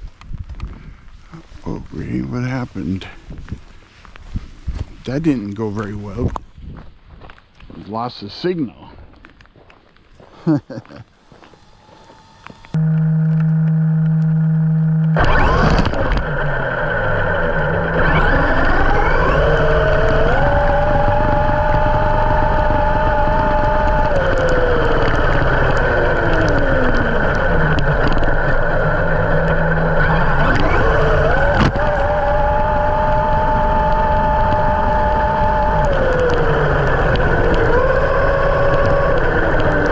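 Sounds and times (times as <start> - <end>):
tyres on rough ground: 0.0 - 13.6, 15.2 - 39.9
low hum: 10.9 - 39.9
rc truck motor whine: 11.2 - 39.9.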